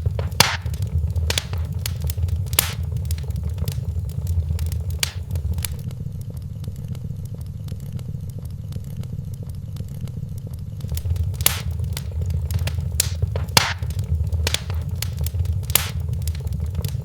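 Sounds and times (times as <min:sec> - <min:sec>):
wood fire crackling: 0:00.0 - 0:05.9, 0:10.8 - 0:17.0
low steady rumble: 0:00.0 - 0:17.0.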